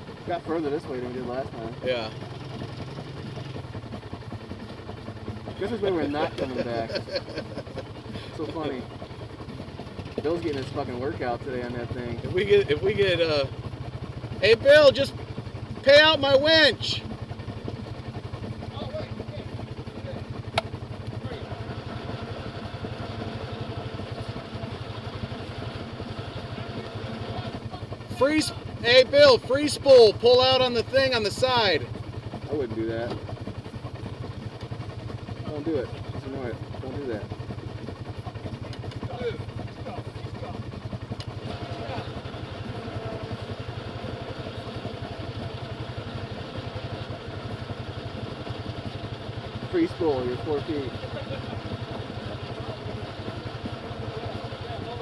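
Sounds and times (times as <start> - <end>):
engine idling: 0.0 - 55.0.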